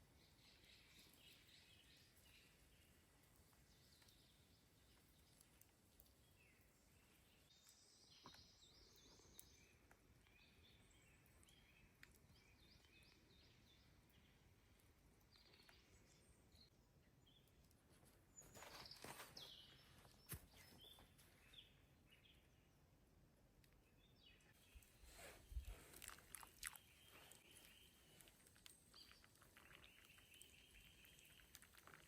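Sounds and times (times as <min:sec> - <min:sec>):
small birds chirping: 0:00.0 - 0:22.9, 0:23.6 - 0:32.0
rustling noise: 0:17.9 - 0:21.3, 0:24.8 - 0:26.0.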